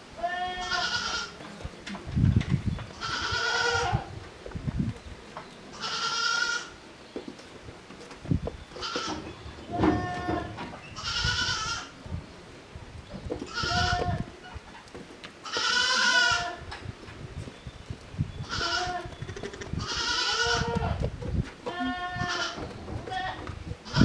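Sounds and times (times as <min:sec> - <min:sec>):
goats bleating: 0:00.2 - 0:01.4, 0:02.9 - 0:04.1, 0:05.7 - 0:06.8, 0:08.8 - 0:12.0, 0:13.5 - 0:14.3, 0:15.4 - 0:16.7, 0:18.4 - 0:24.0.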